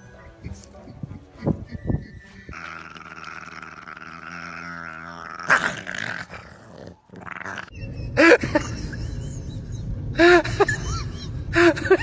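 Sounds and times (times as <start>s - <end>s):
dog growling: 2.5s - 7.7s.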